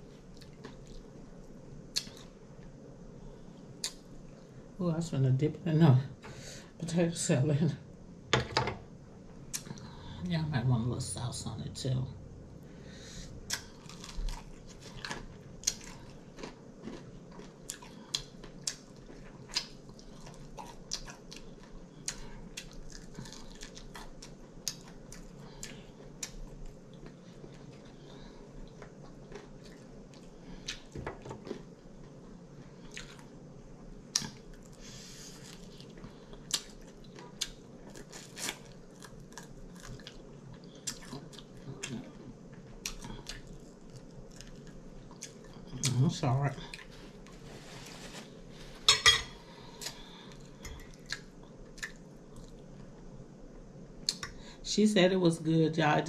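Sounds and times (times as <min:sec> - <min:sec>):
person chewing wet mouth clicks: 0:50.9 - 0:52.6.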